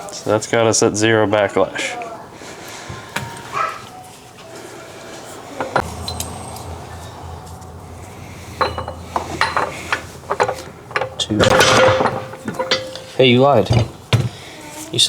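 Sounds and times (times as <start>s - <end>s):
low steady hum: 5.5s - 13.2s
metal tools clinking: 5.6s - 14.1s.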